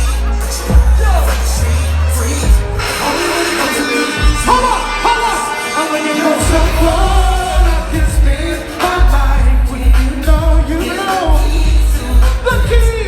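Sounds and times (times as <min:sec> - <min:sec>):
band with heavy pulsing bass: 0:00.0 - 0:13.0
person singing: 0:01.6 - 0:13.0.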